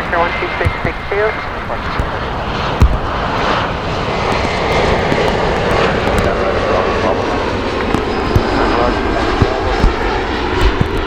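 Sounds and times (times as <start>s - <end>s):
jet engines rushing: 0.0s - 11.0s
sharp knock: 2.8s - 3.6s.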